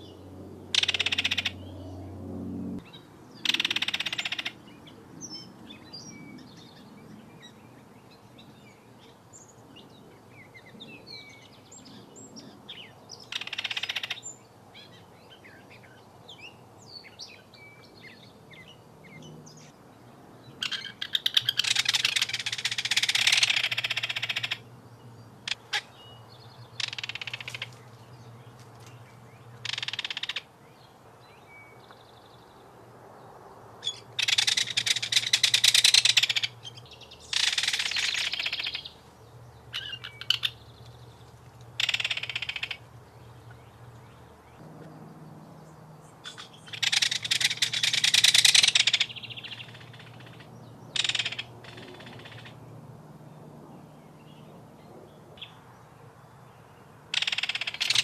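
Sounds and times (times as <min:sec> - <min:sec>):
kingfisher rattling calls: 0:00.7 - 0:01.6, 0:03.4 - 0:04.6, 0:13.3 - 0:14.2, 0:20.6 - 0:24.6, 0:26.8 - 0:27.7, 0:29.6 - 0:30.4, 0:33.8 - 0:38.9, 0:41.8 - 0:42.8, 0:46.2 - 0:52.5, 0:57.1 - 0:58.0.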